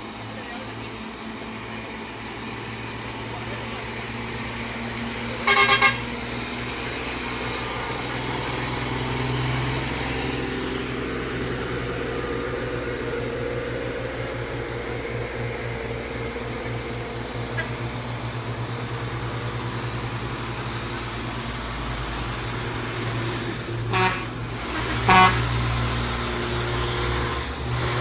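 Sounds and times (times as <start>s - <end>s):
heavy engine running: 0.0s - 28.0s
vehicle horn toots: 5.4s - 6.1s, 23.9s - 25.6s.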